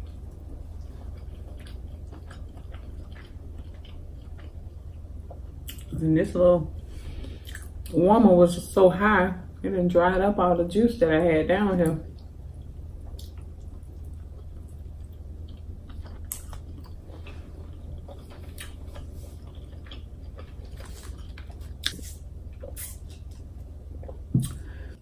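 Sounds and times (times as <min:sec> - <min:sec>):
close chewing with mouth smacks: 0:00.0 - 0:06.0, 0:07.2 - 0:07.9, 0:12.1 - 0:24.6
steady low hum: 0:00.0 - 0:25.0.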